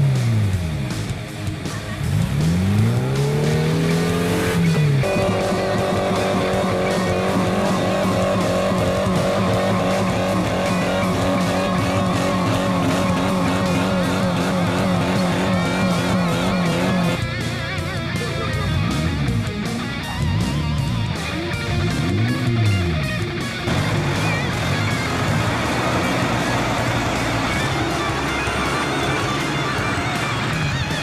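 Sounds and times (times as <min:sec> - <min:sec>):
loud electric guitar music: 0:00.0 - 0:31.0
off-road engine revving: 0:00.0 - 0:31.0.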